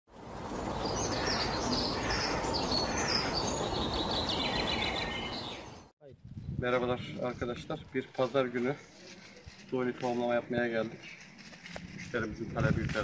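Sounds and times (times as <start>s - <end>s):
songbird chirping and trilling: 0.4s - 5.9s.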